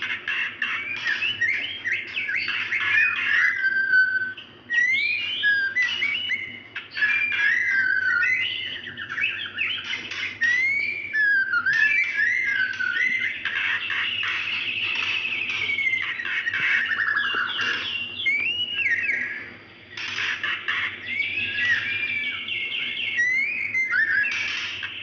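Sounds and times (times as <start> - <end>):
bird trills and whistles: 0.0 - 25.0.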